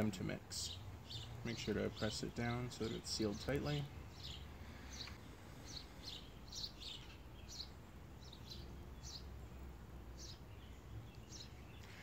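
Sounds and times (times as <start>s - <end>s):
outdoor background noise: 0.0s - 12.0s
small bird chirps: 2.8s - 12.0s.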